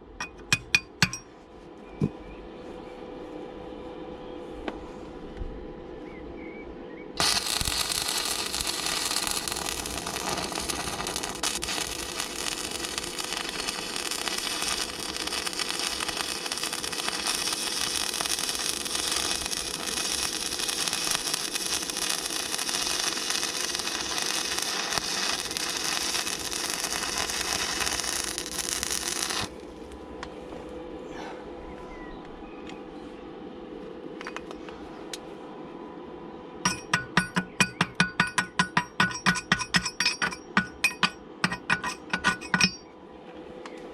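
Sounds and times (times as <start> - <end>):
arc welder sizzling: 7.2 - 29.8, 36.7 - 42.8.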